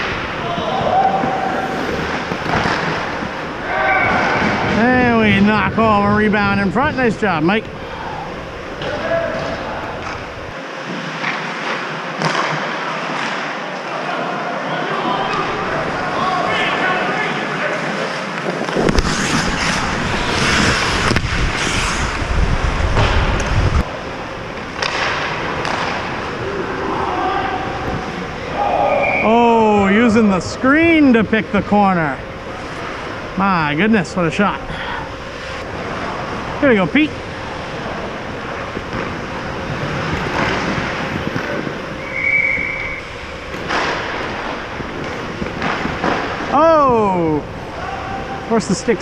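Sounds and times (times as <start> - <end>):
skate blades scraping on ice: 17.8 - 23.7
skate blades scraping ice: 17.8 - 23.8, 37.0 - 46.5
wind rumble on microphone: 19.8 - 23.9.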